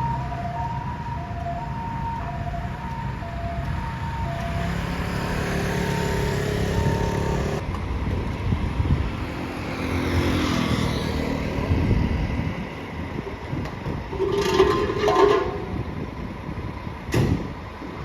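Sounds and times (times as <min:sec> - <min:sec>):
two-tone siren: 0:00.0 - 0:07.6
fire engine motor running: 0:00.0 - 0:08.8
emergency vehicle engine pulling away: 0:00.0 - 0:13.2.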